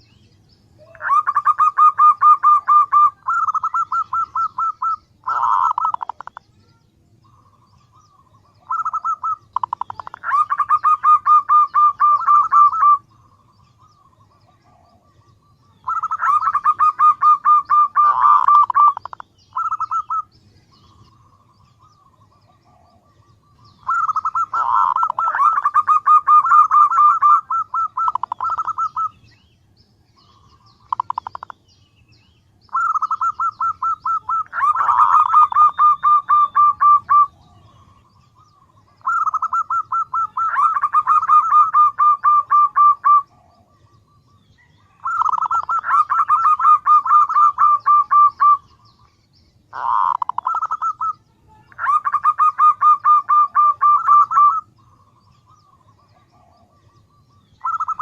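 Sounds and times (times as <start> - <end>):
dove cooing: 0.8 - 6.5, 7.2 - 29.4, 30.2 - 31.5, 32.7 - 49.0, 49.7 - 58.0.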